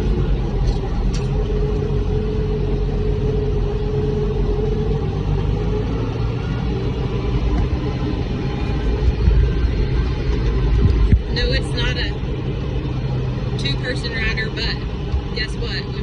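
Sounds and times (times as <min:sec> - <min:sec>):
steady whine: 0:00.0 - 0:16.0
tractor diesel engine running: 0:00.0 - 0:16.0.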